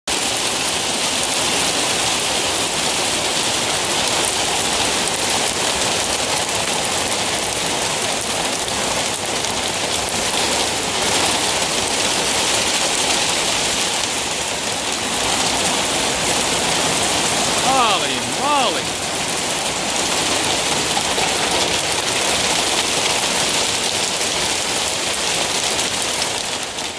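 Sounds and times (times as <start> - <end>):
heavy rain falling: 0.1 - 26.9.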